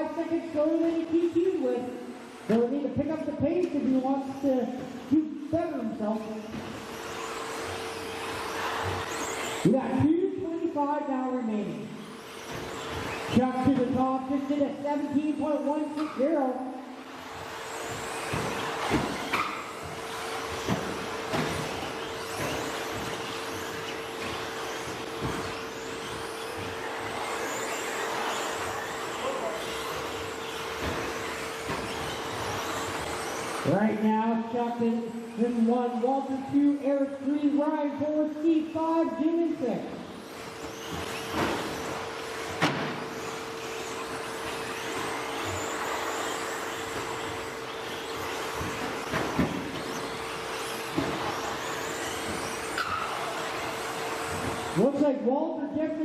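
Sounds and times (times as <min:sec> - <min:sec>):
electric motor whines: 0:00.6 - 0:10.5, 0:11.2 - 0:37.6, 0:39.7 - 0:55.0
sharp knocks and thumps: 0:17.8 - 0:26.8, 0:29.9 - 0:33.6, 0:40.4 - 0:43.2, 0:44.0 - 0:54.8.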